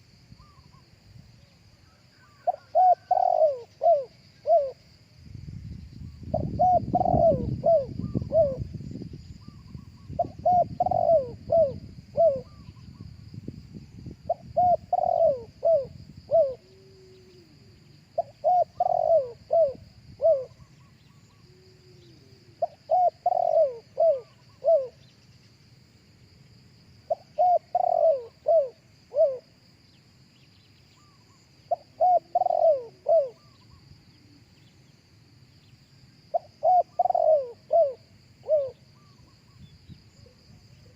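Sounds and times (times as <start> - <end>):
dove cooing: 2.2 - 4.8, 6.3 - 8.8, 9.4 - 13.0, 14.3 - 25.1, 27.1 - 29.5, 31.0 - 34.5, 36.3 - 39.6.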